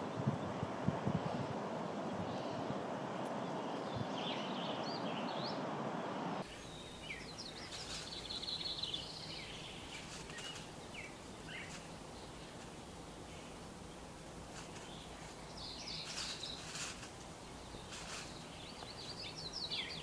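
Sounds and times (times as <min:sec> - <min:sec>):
steady rustling noise: 0:00.0 - 0:19.5
birds chirping and whistling: 0:02.2 - 0:11.8.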